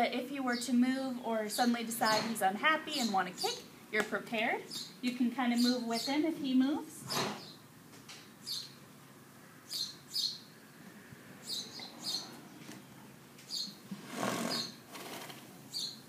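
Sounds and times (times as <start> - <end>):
small birds chirping: 0.4 - 10.6, 11.4 - 13.8, 14.5 - 14.8, 15.7 - 16.0.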